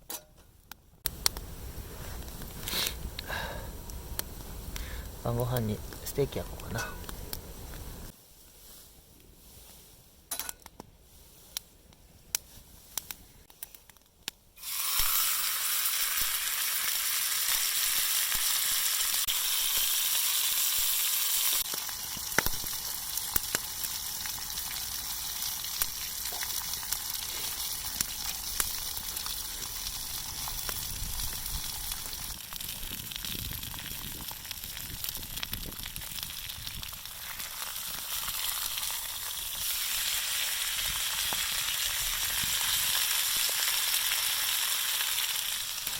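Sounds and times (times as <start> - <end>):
steak sizzling in a pan: 14.6 - 45.9.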